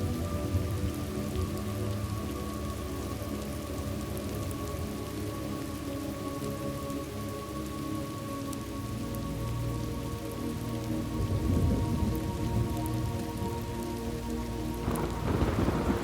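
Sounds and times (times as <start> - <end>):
steady rain: 0.0 - 16.0
low thunder rumble: 11.2 - 12.8, 14.8 - 16.0.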